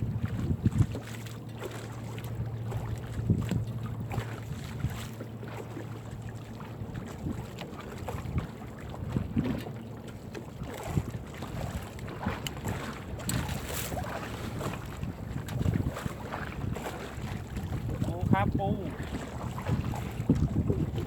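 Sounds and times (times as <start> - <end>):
wind on microphone: 0.0 - 1.1, 2.4 - 5.1, 6.8 - 9.7, 10.6 - 21.0
low engine hum: 0.0 - 21.0
net knocking and rustling on boat: 0.0 - 21.0.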